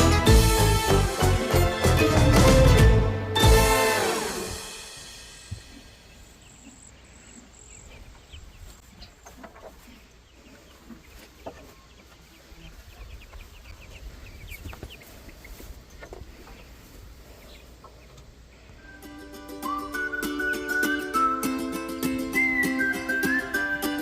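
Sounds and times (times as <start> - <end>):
chickens clucking: 5.1 - 20.9.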